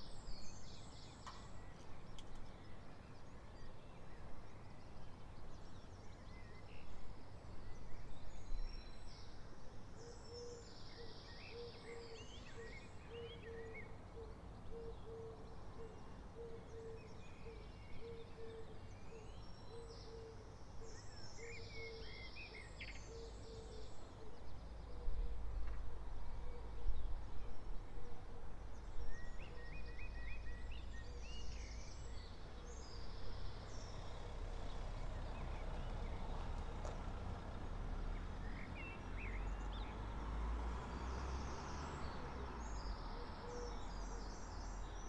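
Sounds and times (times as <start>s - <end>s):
songbirds chirping: 0.0s - 45.0s
low traffic rumble: 22.1s - 45.0s.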